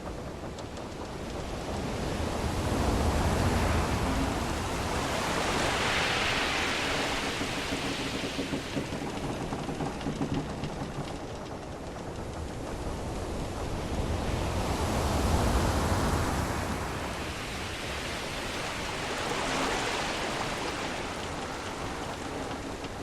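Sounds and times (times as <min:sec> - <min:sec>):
ship timbers creaking: 0:00.0 - 0:14.2, 0:19.3 - 0:23.0
sea waves washing around ship: 0:00.0 - 0:23.0.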